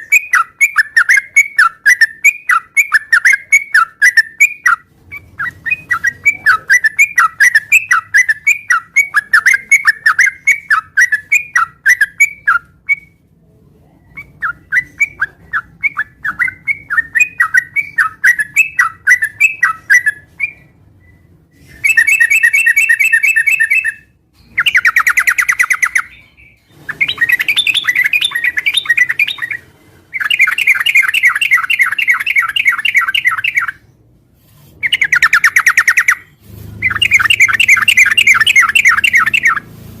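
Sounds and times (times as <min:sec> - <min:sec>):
bird chirping: 0:00.0 - 0:13.2, 0:13.8 - 0:34.1, 0:34.7 - 0:39.8
bird buzzy trills: 0:34.8 - 0:39.8.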